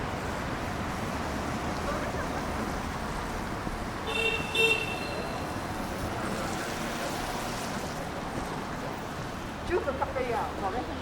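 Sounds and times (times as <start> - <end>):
city street traffic: 0.0 - 11.0
vehicle horn toots: 4.1 - 5.4.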